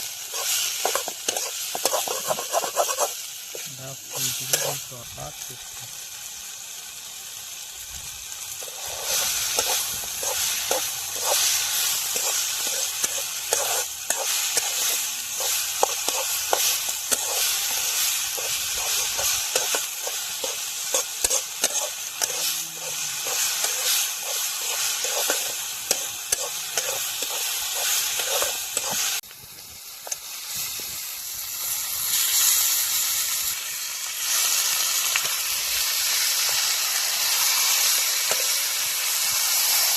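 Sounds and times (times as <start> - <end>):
curry sizzling in a pan: 0.0 - 39.9
utensil scraping a pan: 0.3 - 4.8, 8.6 - 29.2.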